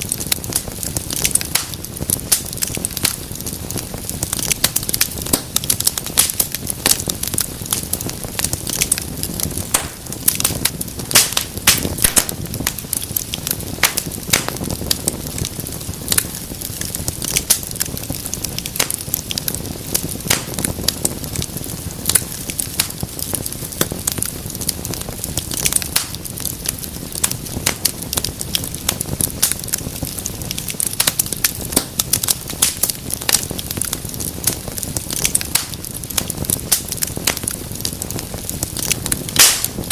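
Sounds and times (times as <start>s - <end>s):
low rumble of flames: 0.0s - 39.9s
sharp pops and snaps: 0.0s - 39.9s
wood fire crackling: 0.0s - 39.9s.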